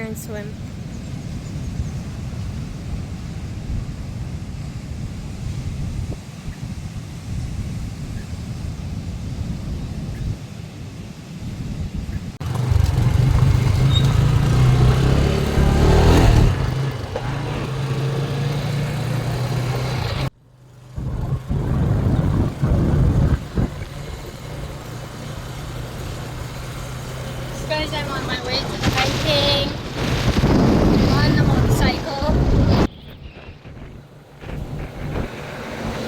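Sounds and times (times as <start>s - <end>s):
road and wind noise: 0.0s - 36.0s
motorcycle engine running: 12.4s - 36.0s.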